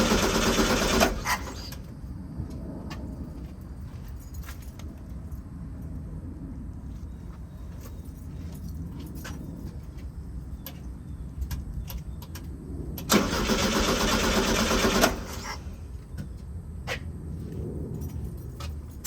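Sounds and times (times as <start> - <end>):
engine cranked by starter: 0.0 - 1.8, 13.0 - 15.8.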